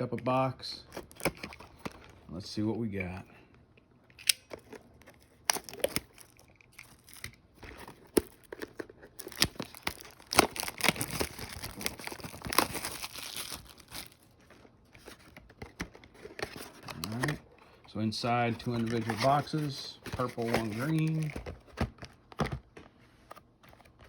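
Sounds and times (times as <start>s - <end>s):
plastic wrapping crinkling: 4.6s - 15.1s.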